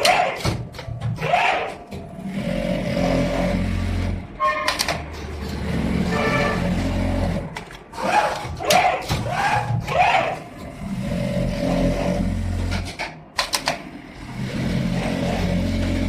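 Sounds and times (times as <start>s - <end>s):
sewing machine humming: 1.9s - 8.7s, 10.0s - 16.0s.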